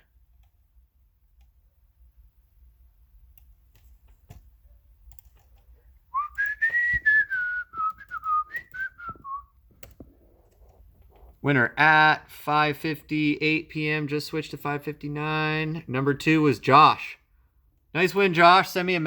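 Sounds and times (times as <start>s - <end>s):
person whistling: 6.1s - 9.6s.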